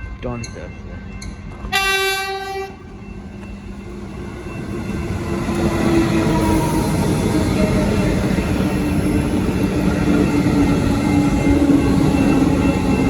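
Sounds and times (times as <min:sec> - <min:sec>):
train rumble: 0:00.0 - 0:13.0
train horn blast: 0:01.7 - 0:03.0.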